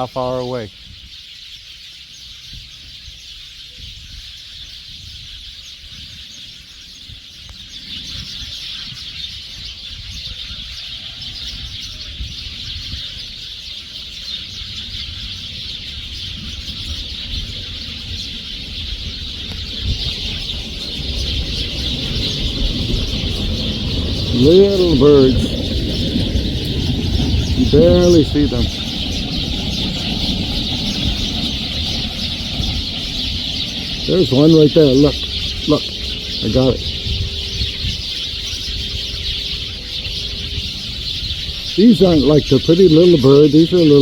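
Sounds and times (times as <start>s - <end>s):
small birds chirping: 0.0s - 44.0s
low rumble: 14.6s - 43.0s.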